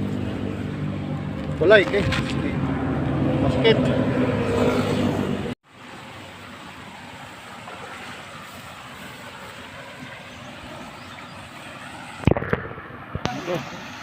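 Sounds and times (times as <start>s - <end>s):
wind or water rushing: 0.0s - 14.0s.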